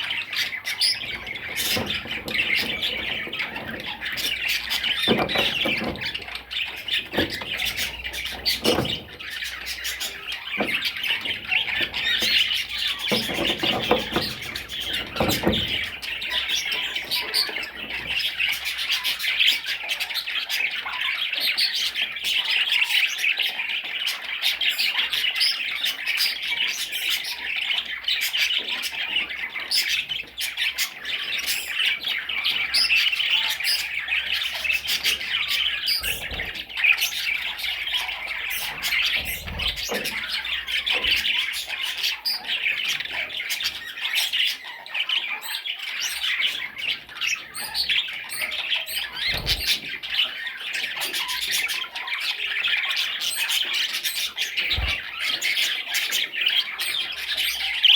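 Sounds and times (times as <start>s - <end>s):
budgerigar chattering: 22.4s - 57.9s.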